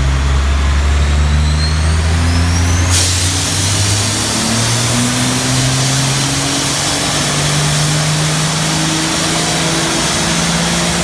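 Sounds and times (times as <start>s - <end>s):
truck engine accelerating: 0.0s - 11.0s
loud rushing noise: 2.8s - 11.0s.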